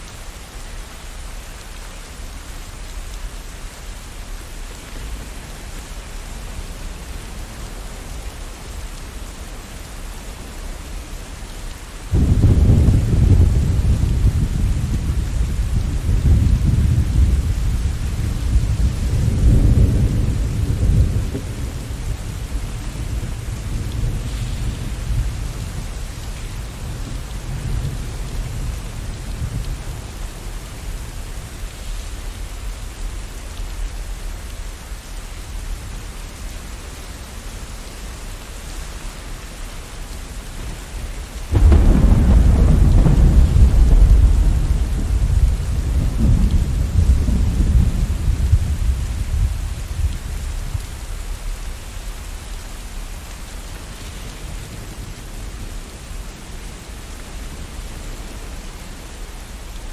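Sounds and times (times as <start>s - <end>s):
steady rain falling: 0.0s - 59.9s
thunder rumbling: 12.1s - 33.3s, 41.0s - 51.5s.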